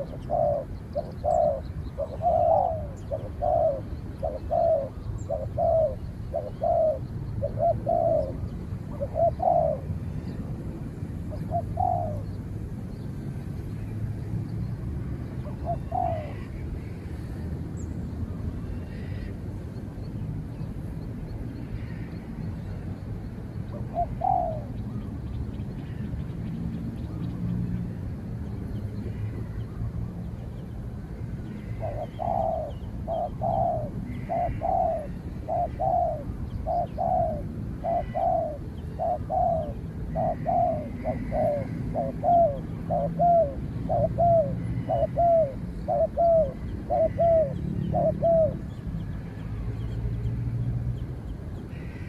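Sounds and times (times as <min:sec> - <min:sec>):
dove cooing: 0:00.0 - 0:10.4, 0:11.1 - 0:12.4, 0:15.4 - 0:17.4, 0:23.7 - 0:25.0, 0:31.6 - 0:48.8.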